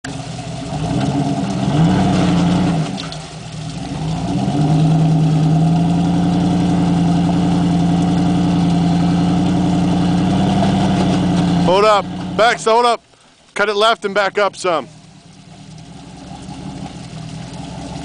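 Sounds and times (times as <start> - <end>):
engine revving under load: 0.4 - 12.7.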